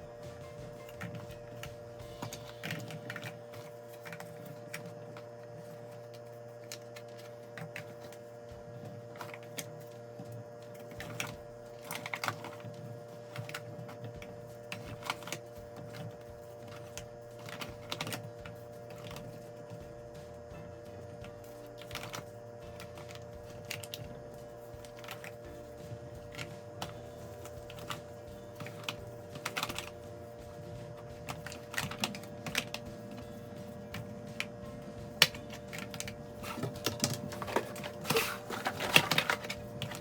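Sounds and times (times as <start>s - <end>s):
low appliance hum: 0.0s - 40.0s.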